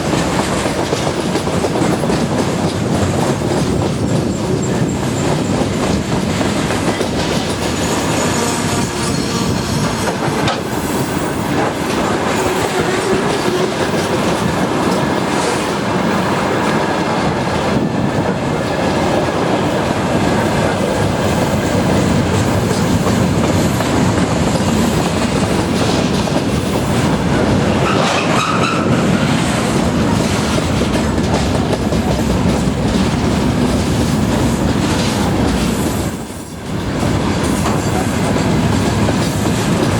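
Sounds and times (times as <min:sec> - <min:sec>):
freight train rumbling past: 0:00.0 - 0:39.9
wheels clacking over rail joints: 0:00.0 - 0:39.9
train wheel squeal: 0:04.0 - 0:11.7, 0:27.8 - 0:29.5.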